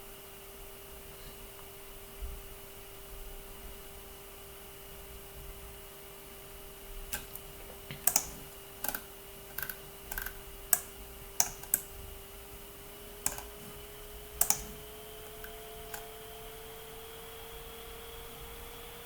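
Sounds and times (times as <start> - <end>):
faint hum: 0.0 - 19.0
keyboard keys clicking: 7.1 - 12.1, 13.2 - 16.1.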